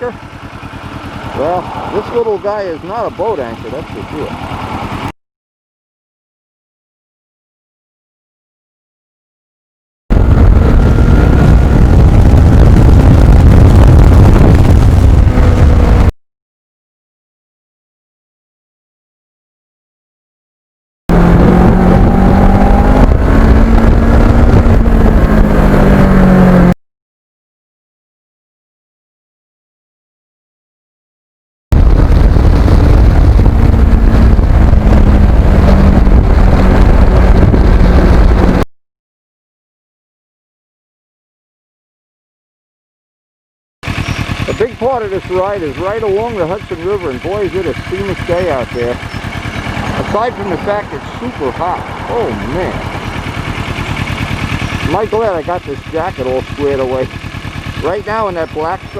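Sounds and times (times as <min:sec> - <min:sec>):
motorcycle engine rumble: 0:00.0 - 0:05.1, 0:10.1 - 0:16.1, 0:21.1 - 0:26.8, 0:31.7 - 0:38.7, 0:43.8 - 0:58.9
wind rumble on microphone: 0:10.1 - 0:16.1, 0:21.1 - 0:26.8, 0:31.7 - 0:38.6.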